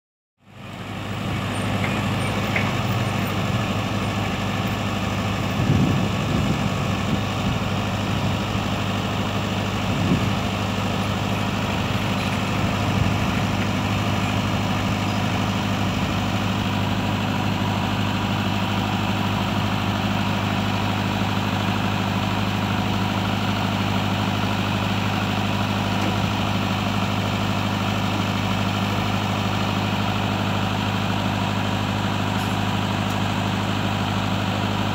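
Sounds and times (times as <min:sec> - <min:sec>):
diesel engine idling: 0:00.4 - 0:34.9
engine knocks: 0:01.2 - 0:08.4, 0:24.2 - 0:30.2.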